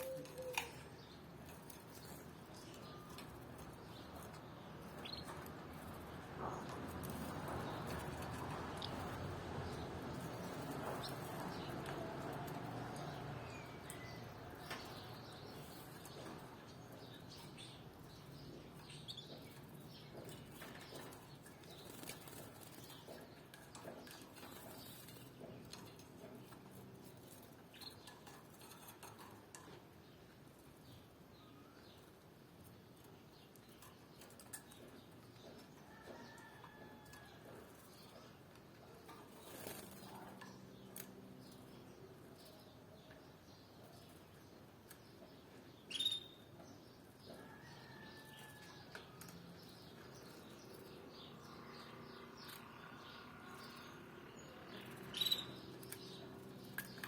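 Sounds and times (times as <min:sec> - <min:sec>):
bird chirps: 0:45.8 - 0:46.5, 0:54.8 - 0:55.8.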